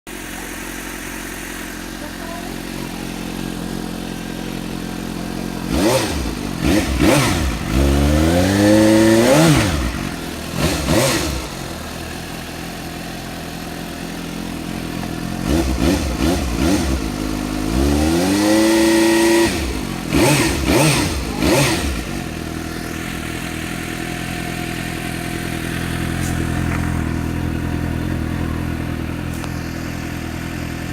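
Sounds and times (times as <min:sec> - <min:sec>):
motorcycle engine idling: 0:00.1 - 0:30.9
motorcycle engine revving: 0:00.1 - 0:30.9.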